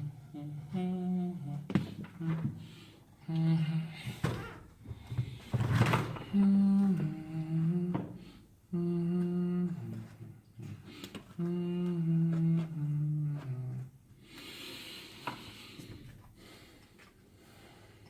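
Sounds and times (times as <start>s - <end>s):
man humming a tune: 0.0s - 2.5s, 3.2s - 4.3s, 6.3s - 14.0s.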